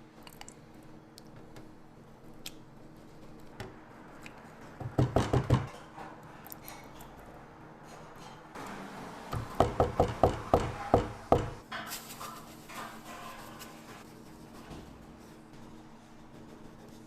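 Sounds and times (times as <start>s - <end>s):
utensil knocking on work surface: 9.4s - 11.6s.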